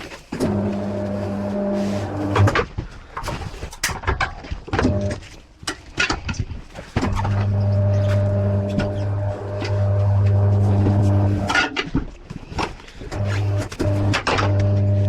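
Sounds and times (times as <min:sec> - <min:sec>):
electric motor humming: 0:00.4 - 0:02.6, 0:07.0 - 0:11.6, 0:13.1 - 0:15.0.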